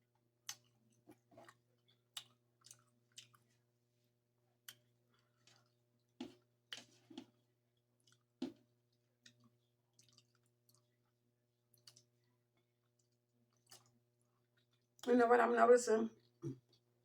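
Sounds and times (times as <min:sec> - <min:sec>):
wet chewing smacks and clicks: 0:00.4 - 0:03.6, 0:04.6 - 0:15.1.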